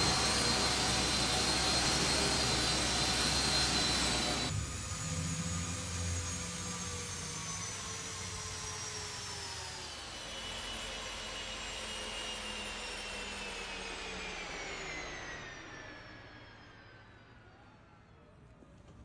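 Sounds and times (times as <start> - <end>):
car high electric whine: 0.0 - 9.8.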